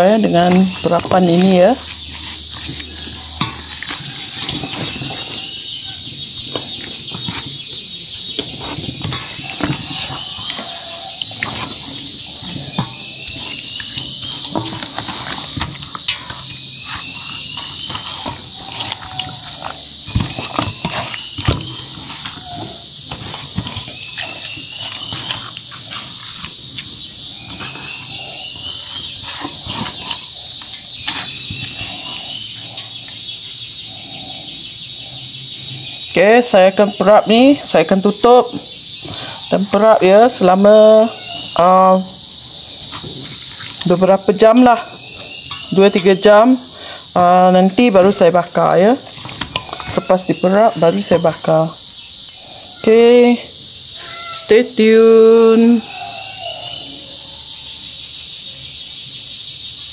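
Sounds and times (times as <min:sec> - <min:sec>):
hands mixing raw chicken: 0:00.0 - 0:32.9
high-pitched insect drone: 0:00.0 - 0:59.9.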